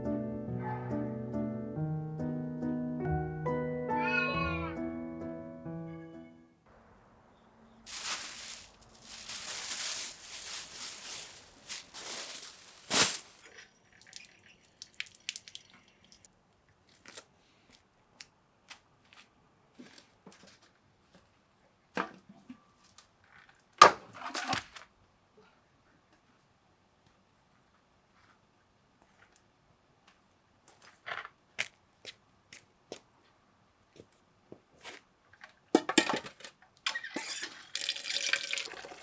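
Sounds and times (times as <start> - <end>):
dry crinkling and rustling: 7.9 - 15.4.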